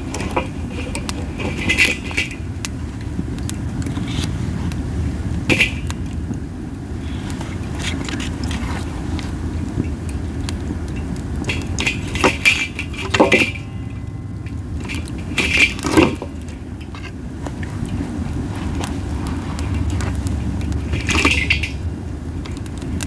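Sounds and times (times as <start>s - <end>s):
campfire crackling and popping: 0.0s - 23.0s
wind rumble on microphone: 0.0s - 23.0s.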